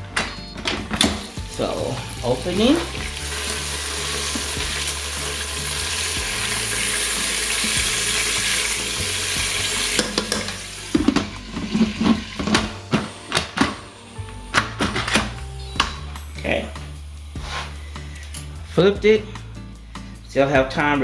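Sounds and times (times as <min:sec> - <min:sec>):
steak sizzling in hot oil: 0:01.1 - 0:12.4, 0:15.7 - 0:18.1
sharp clicks and knocks in pot: 0:07.6 - 0:13.8.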